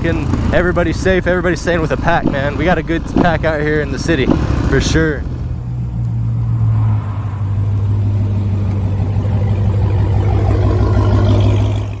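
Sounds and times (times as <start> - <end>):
road noise: 0.0 - 12.0
vehicle engine droning: 0.0 - 12.0.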